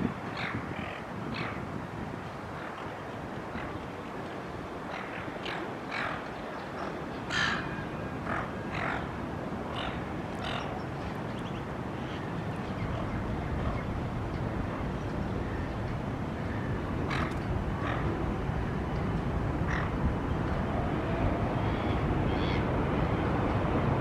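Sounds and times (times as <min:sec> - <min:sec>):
birds squawking: 0:07.3 - 0:07.7.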